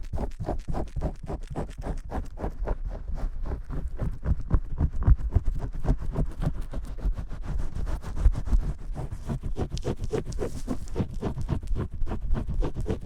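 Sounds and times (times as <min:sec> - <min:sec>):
muffled scrubbing strokes: 0:07.3 - 0:13.0.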